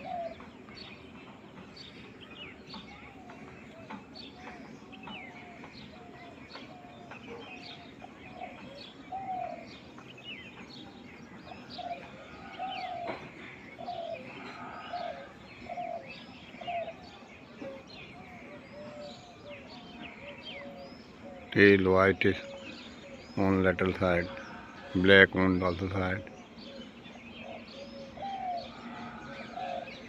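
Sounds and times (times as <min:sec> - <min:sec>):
dove cooing: 0:00.0 - 0:00.4, 0:11.5 - 0:21.5, 0:26.2 - 0:30.0
small birds chirping: 0:00.0 - 0:30.0.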